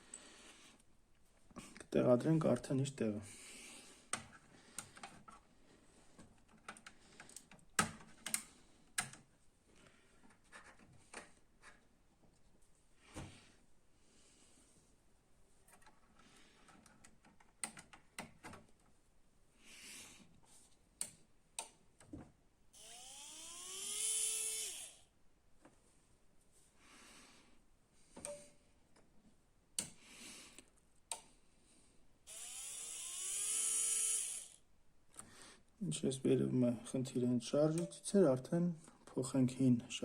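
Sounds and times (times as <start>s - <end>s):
motor whine rising in pitch: 22.8s - 25.1s, 32.3s - 34.6s.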